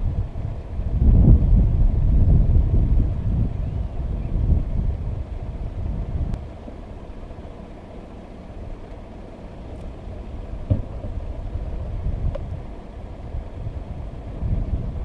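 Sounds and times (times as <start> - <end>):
vehicle engines idling: 0.0 - 15.0
single thump: 10.6 - 11.2.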